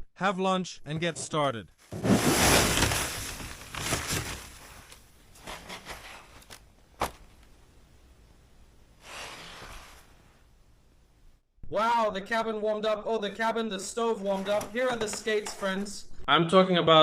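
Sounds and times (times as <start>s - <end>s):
gear rustling and shuffling: 1.8s - 7.5s.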